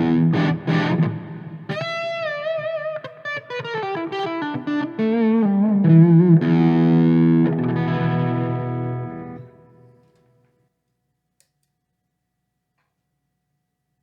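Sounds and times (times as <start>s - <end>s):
distorted electric guitar: 0.0s - 9.9s.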